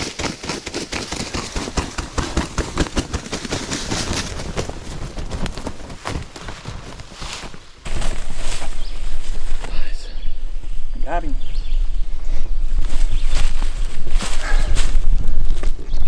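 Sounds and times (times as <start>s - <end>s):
footsteps crunching through dry leaves: 5.1s - 16.0s.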